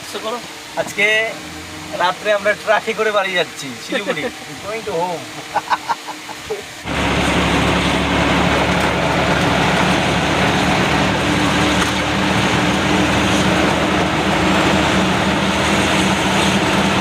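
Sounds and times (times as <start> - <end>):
truck engine hum: 0.0 - 17.0
loud rushing noise: 6.7 - 17.0.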